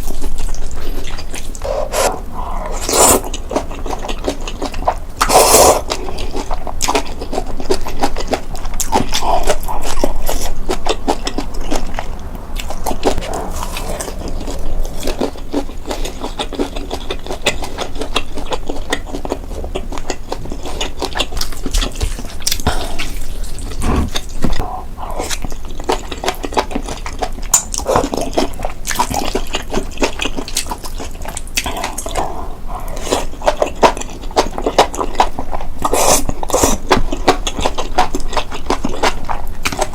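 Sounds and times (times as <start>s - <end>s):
wet chewing and biting: 0.0s - 39.9s
mouth clicks: 1.4s - 3.7s, 22.5s - 25.7s, 31.6s - 34.5s.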